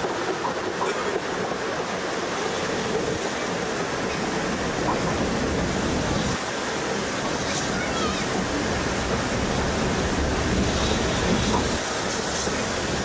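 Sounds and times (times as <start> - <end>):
train carriage wheels rumbling: 0.0 - 13.0.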